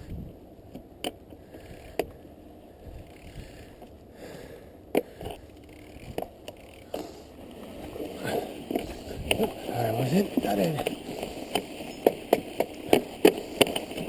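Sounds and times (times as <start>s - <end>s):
bike rustling through snow: 2.7s - 4.6s, 5.4s - 14.0s.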